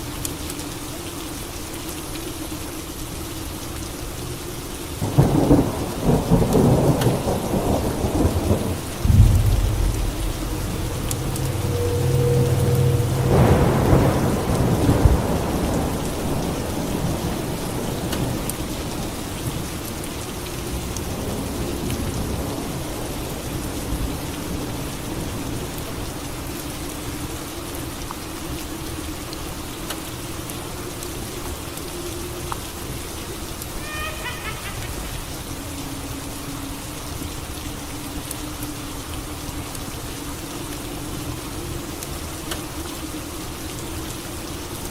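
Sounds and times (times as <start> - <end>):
steady rain: 0.0 - 44.9
thunderclap rolling: 5.1 - 17.4.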